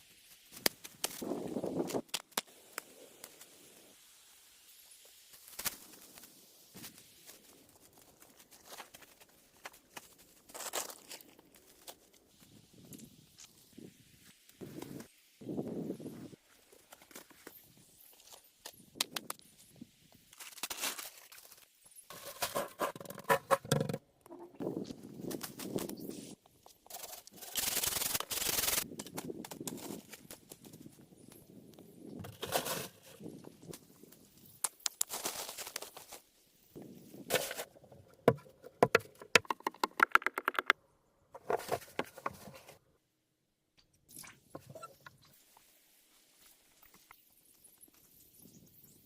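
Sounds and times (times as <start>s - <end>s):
rustling or scraping: 20.5s - 24.0s, 32.2s - 33.3s, 37.2s - 39.4s, 41.4s - 42.8s
wood knocking and scraping: 22.1s - 24.0s, 37.3s - 40.7s
sharp knocks and taps: 38.3s - 40.8s.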